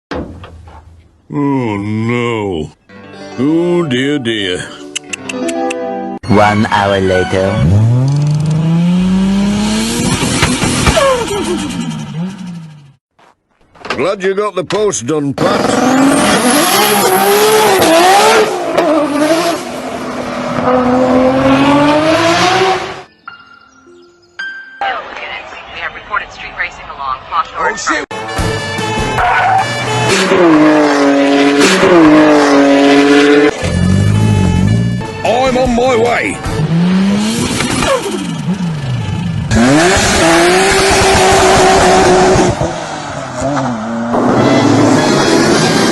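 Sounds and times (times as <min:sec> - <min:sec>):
car engine accelerating through gears: 0:07.6 - 0:12.8, 0:15.4 - 0:23.0, 0:30.0 - 0:34.9, 0:36.5 - 0:45.9.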